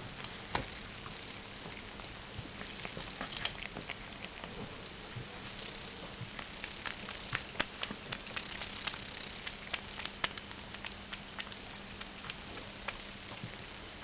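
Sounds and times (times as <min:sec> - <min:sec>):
cats chewing: 0:00.0 - 0:14.0
faint steady hum: 0:00.0 - 0:14.0.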